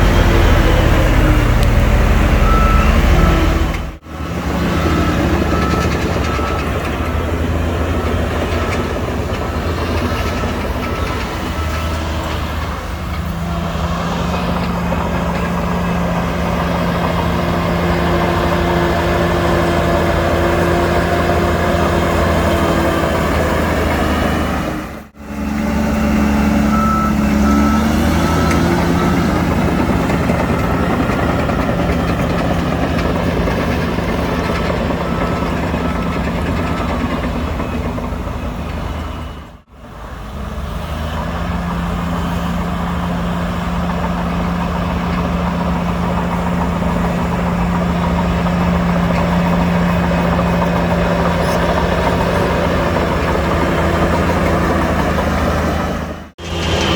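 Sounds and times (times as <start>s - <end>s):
reversing alarm beeping: 0.0s - 23.9s, 25.9s - 39.6s
diesel earthmoving machinery: 0.0s - 56.9s.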